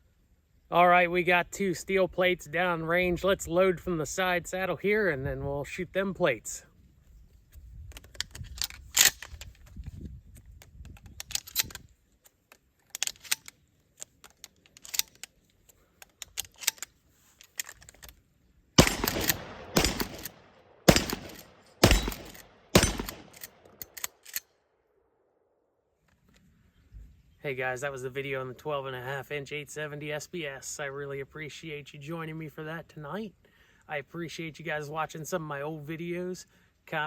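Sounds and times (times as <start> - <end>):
shells clicking into shotgun: 7.9 - 9.7, 12.5 - 15.4, 16.0 - 18.2, 18.8 - 24.5
shotgun pump racking: 7.9 - 9.8, 12.5 - 18.2, 18.8 - 24.4
shotgun shots: 18.8 - 23.8.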